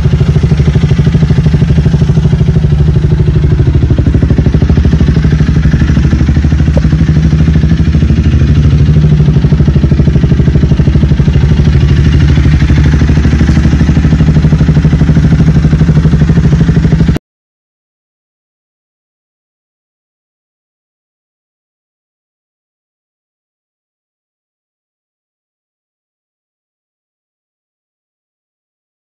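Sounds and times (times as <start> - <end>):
motorcycle engine idling: 0.0 - 17.2.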